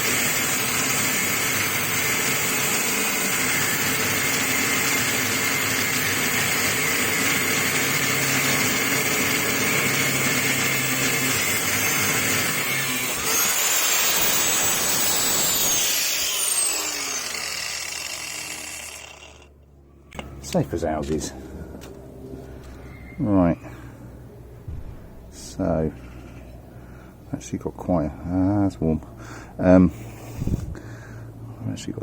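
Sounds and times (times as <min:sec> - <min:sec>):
angle grinder grinding metal: 0:00.0 - 0:19.5.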